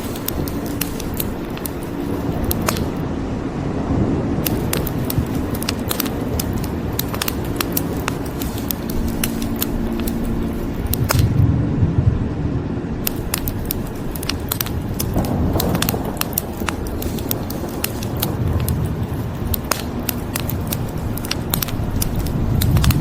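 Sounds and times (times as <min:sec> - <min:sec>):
rain hissing: 0:00.0 - 0:03.0, 0:04.4 - 0:11.4, 0:13.0 - 0:23.0
wood fire crackling and popping: 0:00.0 - 0:03.0, 0:04.4 - 0:11.4, 0:13.0 - 0:23.0
low rumble of thunder: 0:11.3 - 0:13.0, 0:15.1 - 0:20.0.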